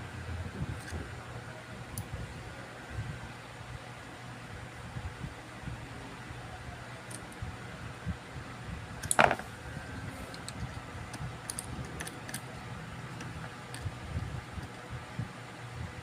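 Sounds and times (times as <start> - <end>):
fan-like hum: 0.0 - 16.0.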